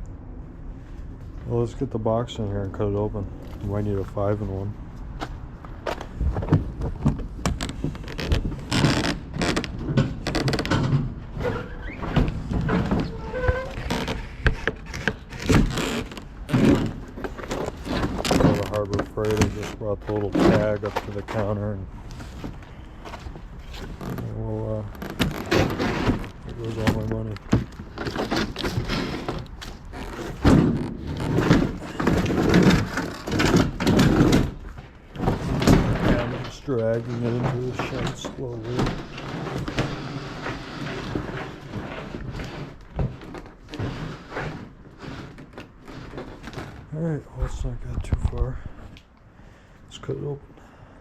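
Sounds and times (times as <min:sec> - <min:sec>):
cardboard box scraping on floor: 0:38.6 - 0:46.9.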